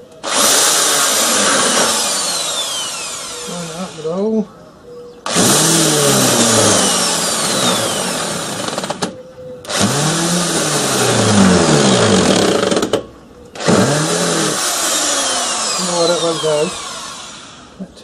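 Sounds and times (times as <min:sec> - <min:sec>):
power drill running: 0:00.0 - 0:04.1, 0:05.2 - 0:13.0, 0:13.6 - 0:17.8.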